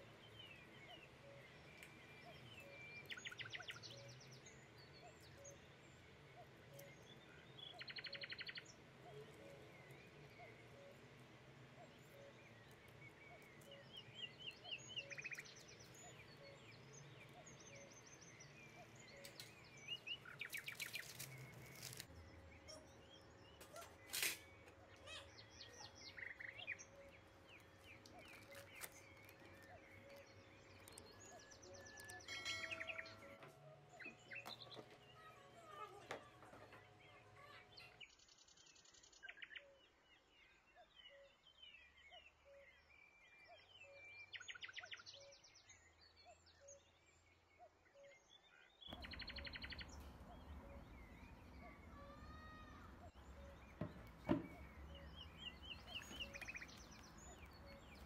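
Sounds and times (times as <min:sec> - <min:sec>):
faint bird chirping trills: 0:00.0 - 0:58.0.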